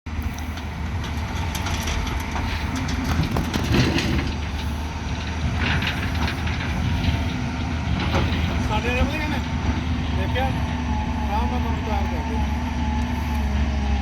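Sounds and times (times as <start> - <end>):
diesel machinery rumbling: 0.1 - 14.0
metallic clanks and knocks: 0.6 - 10.8.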